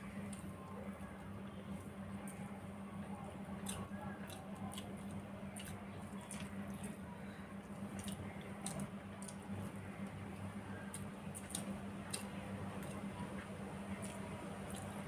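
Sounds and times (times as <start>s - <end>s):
steady low hum: 0.0s - 15.0s
mouth eating sounds: 3.6s - 7.0s.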